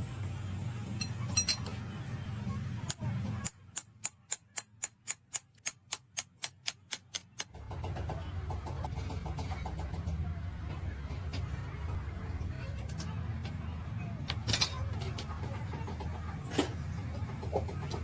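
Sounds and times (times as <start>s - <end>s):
sharp metallic clicks: 2.9s - 7.6s.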